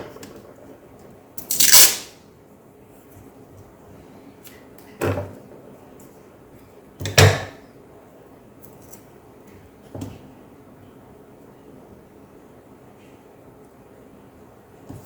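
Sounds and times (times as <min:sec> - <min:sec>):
tape pulled off roll: 0:01.5 - 0:02.1.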